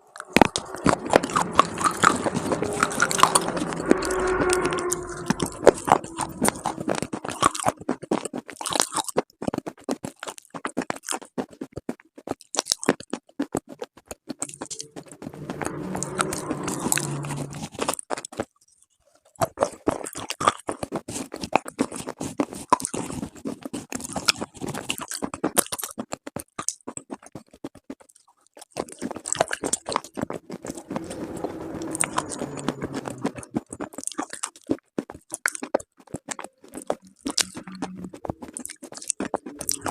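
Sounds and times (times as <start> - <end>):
slate pieces crunching: 5.6 - 11.3.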